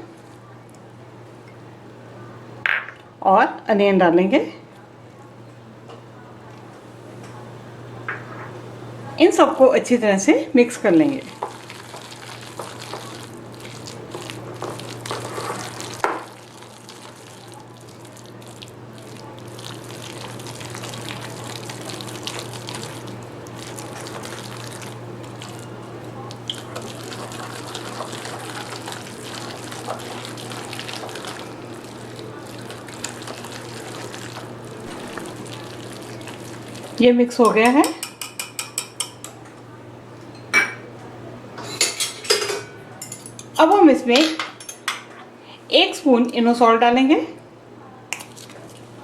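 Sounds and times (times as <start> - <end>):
spoon stirring thick batter: 11.4 - 16.0, 18.7 - 39.4.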